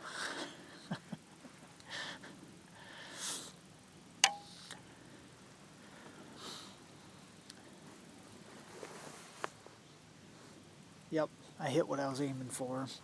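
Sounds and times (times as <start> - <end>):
soft breaths: 1.8 - 3.7, 4.8 - 10.8
bowstring snap: 4.2 - 4.8.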